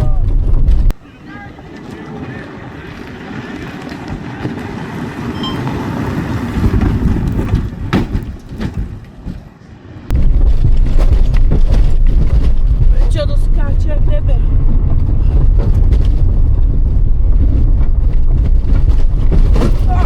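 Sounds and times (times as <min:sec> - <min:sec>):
loud low rumble: 0:00.0 - 0:01.0, 0:10.1 - 0:20.0
rally car engines running hard: 0:00.0 - 0:09.2, 0:10.0 - 0:20.0.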